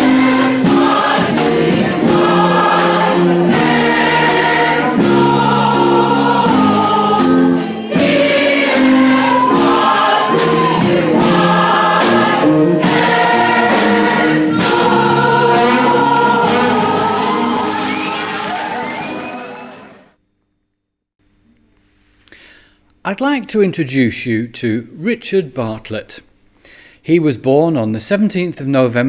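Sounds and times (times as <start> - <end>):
choir singing worship song: 0.0 - 20.1.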